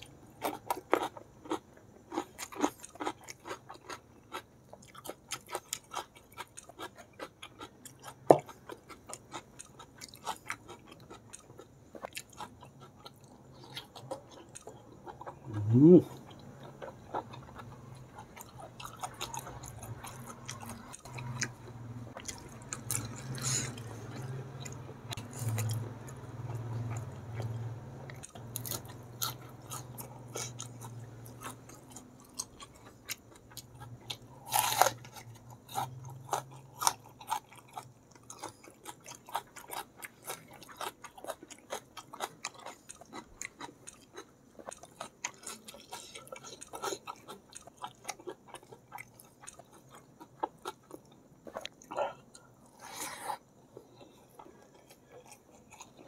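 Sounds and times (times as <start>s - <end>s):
low steady hum: 0.0s - 56.0s
chewing with wet mouth clicks: 16.2s - 52.4s.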